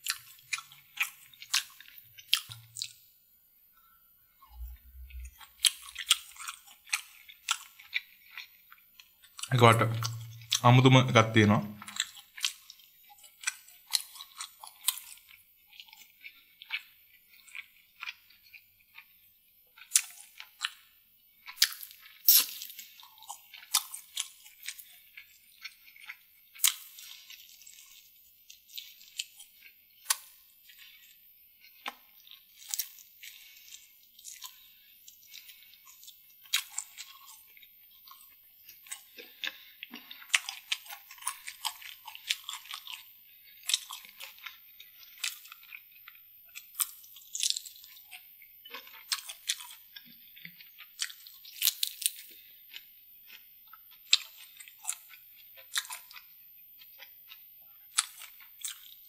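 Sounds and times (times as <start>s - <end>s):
wet chewing smacks: 0.0s - 3.0s, 4.6s - 10.6s, 31.7s - 48.0s.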